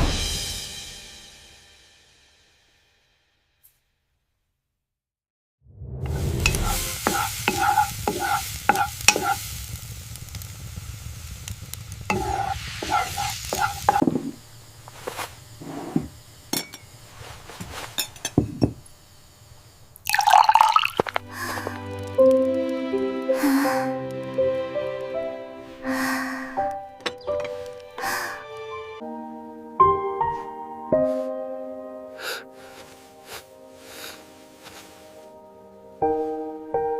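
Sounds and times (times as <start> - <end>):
soft music: 6.0 - 8.9, 21.2 - 36.9
food sizzling in a pan: 6.1 - 21.9, 32.2 - 35.4
utensil clinking and scraping: 6.4 - 9.4, 12.1 - 14.4.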